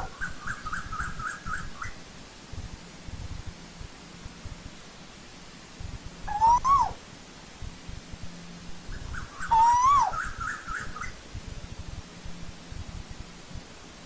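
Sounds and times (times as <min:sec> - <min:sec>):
bird whistled calls: 0:06.3 - 0:07.0, 0:09.1 - 0:11.1.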